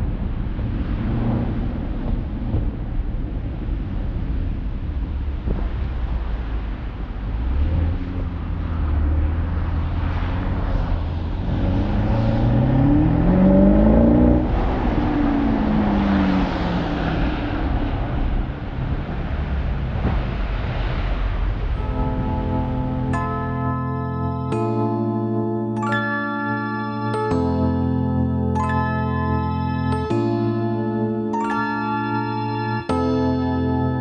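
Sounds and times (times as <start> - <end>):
low engine rumble: 0.0 - 25.7
car engine accelerating: 0.0 - 34.0.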